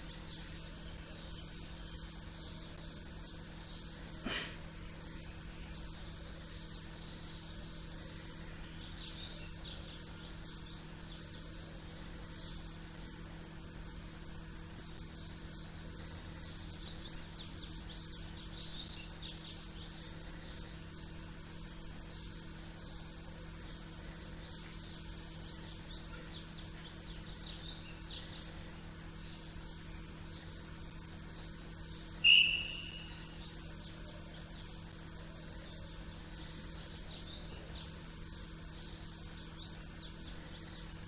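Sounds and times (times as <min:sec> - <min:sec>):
small birds chirping: 0:00.0 - 0:41.0
steady low hum: 0:00.0 - 0:41.0.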